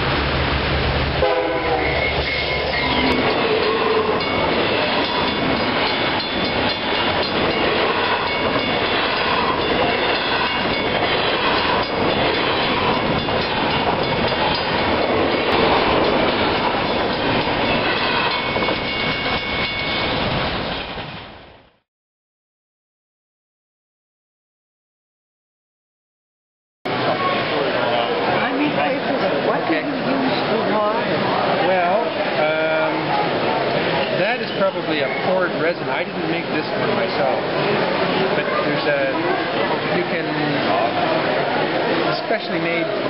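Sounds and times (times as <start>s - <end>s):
train horn tones: 1.2s - 6.0s.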